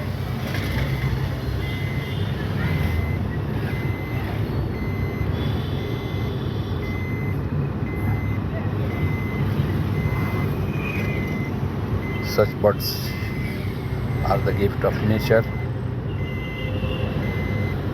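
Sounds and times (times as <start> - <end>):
engine rumbling: 0.0 - 16.5
reversing alarm beeps: 0.8 - 17.9.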